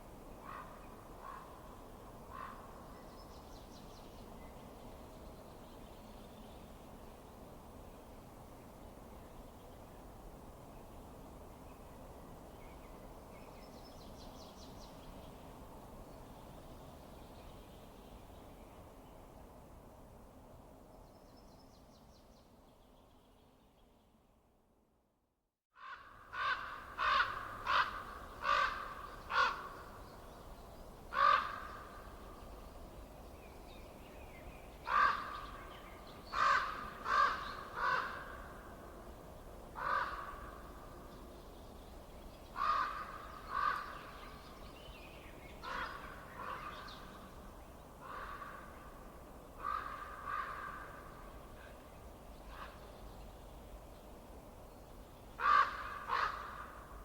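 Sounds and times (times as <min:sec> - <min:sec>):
faint background noise: 0:00.0 - 0:57.0.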